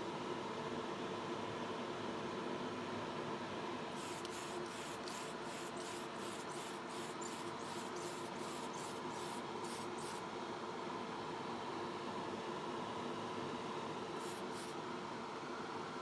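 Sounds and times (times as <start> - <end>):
extraction fan hum: 3.9 - 10.2, 14.1 - 14.9
spray paint hissing bursts: 4.0 - 10.2, 14.2 - 14.8.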